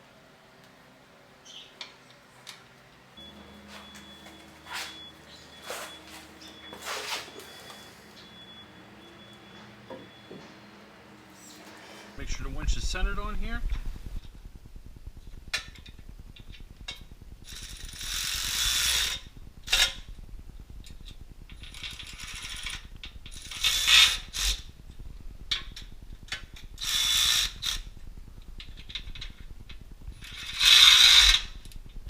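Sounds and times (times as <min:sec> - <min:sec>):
ratchet wrench ratcheting: 0:30.2 - 0:31.5.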